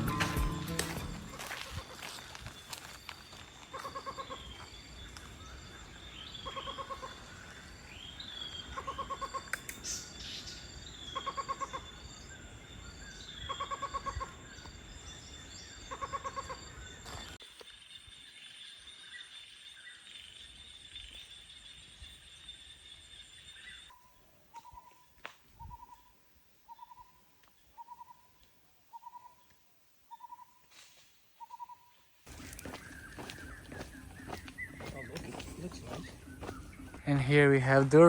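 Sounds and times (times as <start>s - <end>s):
rapid trilling call: 31.4s - 37.1s.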